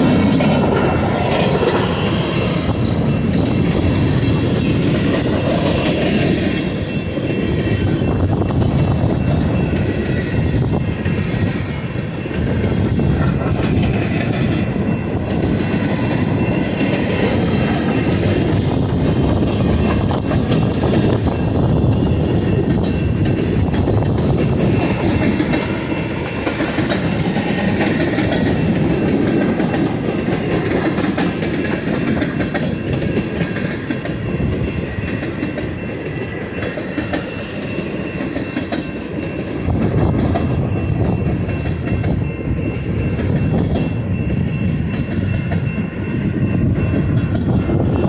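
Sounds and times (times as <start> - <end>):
train wheels rumbling on rails: 0.0 - 48.0.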